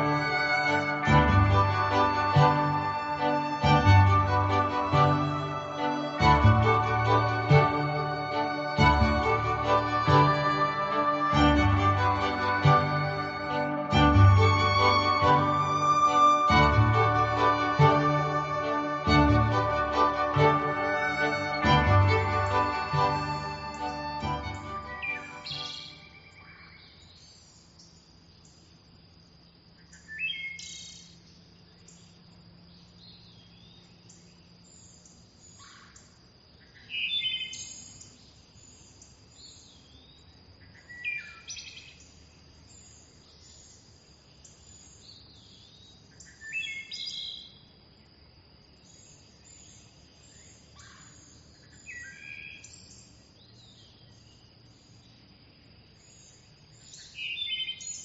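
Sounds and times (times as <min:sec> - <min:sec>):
steady high whine: 0:00.0 - 0:26.3
bird singing descending phrase: 0:00.0 - 0:26.5
faint high bird chirps: 0:04.3 - 0:28.6, 0:29.8 - 0:47.7, 0:48.9 - 0:55.3.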